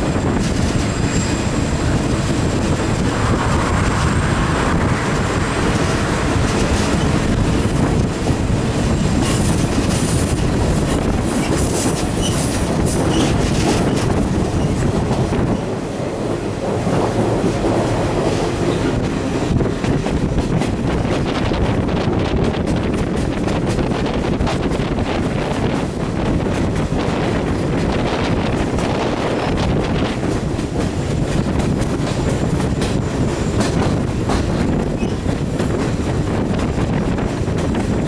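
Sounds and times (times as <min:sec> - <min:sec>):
train wheel and rail rumble: 0:00.0 - 0:38.0
wheel squeal: 0:11.4 - 0:14.0, 0:34.9 - 0:35.3.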